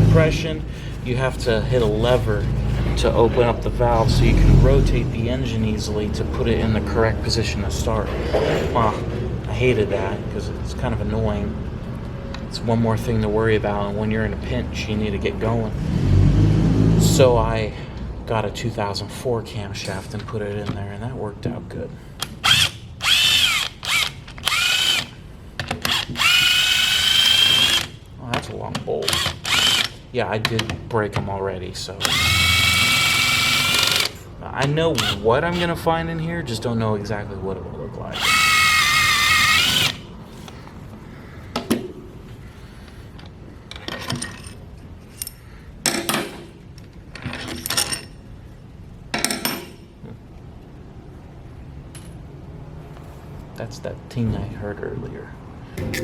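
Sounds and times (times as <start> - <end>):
power drill whining: 22.4 - 25.2, 25.9 - 28.0, 29.1 - 30.0, 32.0 - 34.2, 38.2 - 40.6
metal parts clinking: 43.7 - 46.3, 47.1 - 48.2.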